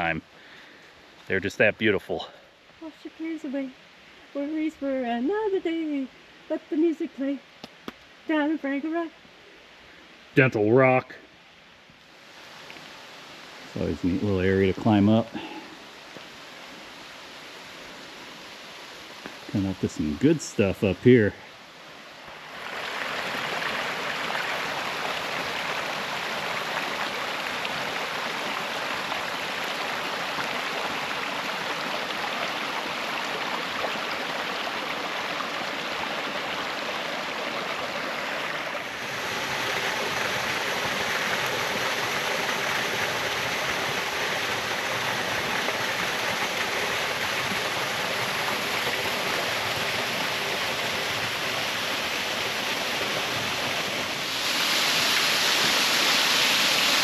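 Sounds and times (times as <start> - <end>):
waterfall pouring onto rock: 54.2 - 57.0.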